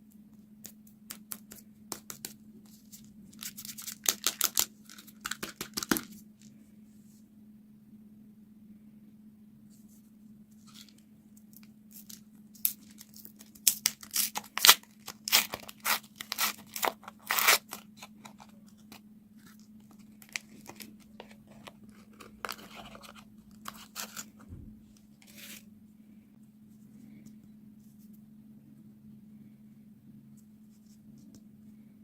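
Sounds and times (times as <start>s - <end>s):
candy wrapper crackling and tearing: 1.1s - 6.5s, 10.6s - 24.4s.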